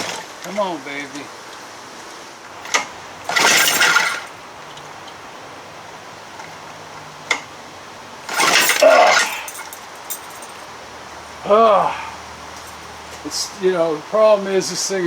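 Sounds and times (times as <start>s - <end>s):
outboard motor turning over: 0.0s - 0.8s, 2.4s - 10.0s.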